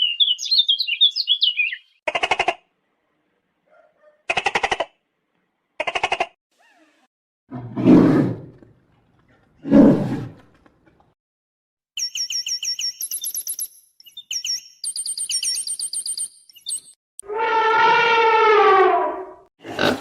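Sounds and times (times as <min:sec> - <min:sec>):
bird rapid high chirps: 0:00.0 - 0:02.0, 0:12.0 - 0:17.0
rough roar-like animal bursts: 0:07.5 - 0:08.6, 0:17.3 - 0:20.0
drawn-out pitched animal call: 0:17.2 - 0:19.1.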